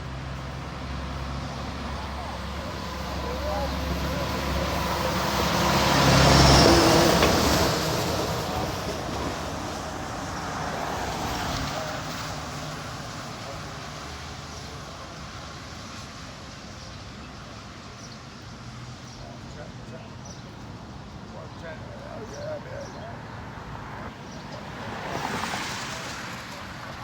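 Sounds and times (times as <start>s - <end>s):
vehicle driving past: 0.1s - 14.4s.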